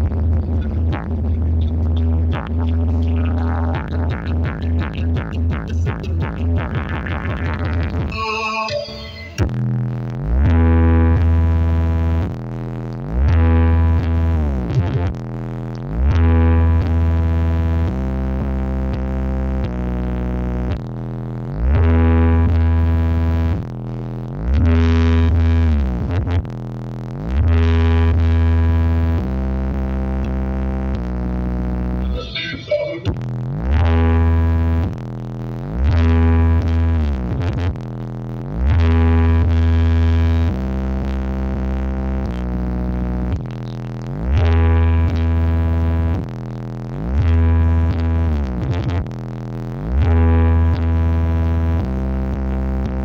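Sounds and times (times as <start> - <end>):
loud electronic music: 0.0 - 12.3, 31.9 - 34.9
bass synthesizer tones with sliding pitch: 0.0 - 53.0.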